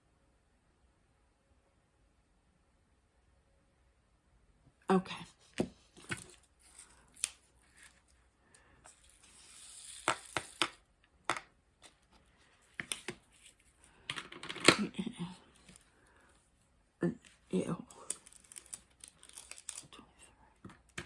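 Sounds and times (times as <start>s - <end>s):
plastic beads clicking and tapping: 5.6s - 12.0s, 12.6s - 13.2s, 13.9s - 14.9s, 17.2s - 20.0s, 20.6s - 21.0s
rustling rattle: 8.8s - 10.7s.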